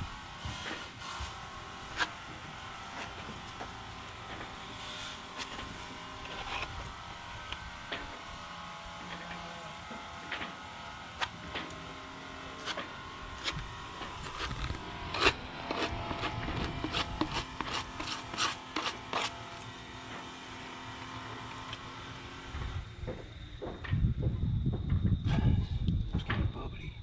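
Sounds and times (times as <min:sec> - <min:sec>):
plastic spreader scraping filler: 0:12.6 - 0:19.7.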